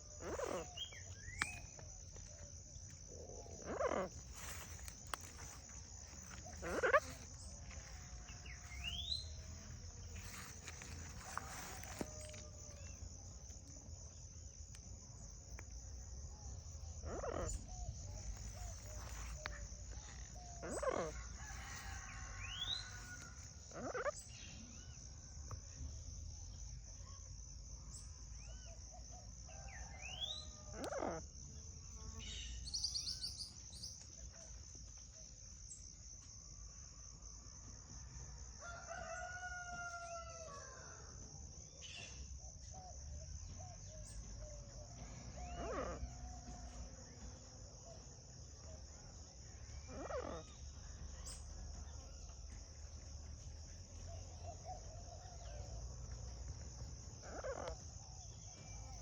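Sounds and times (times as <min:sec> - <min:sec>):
bird calls: 0:00.0 - 0:02.5, 0:03.4 - 0:09.4, 0:17.0 - 0:23.1
high-pitched insect drone: 0:00.0 - 0:14.2.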